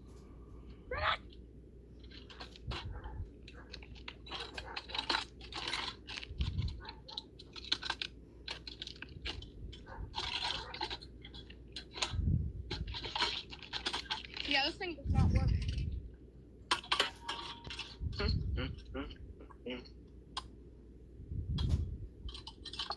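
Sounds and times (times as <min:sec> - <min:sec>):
ceiling fan being broken apart: 0:16.7 - 0:18.1.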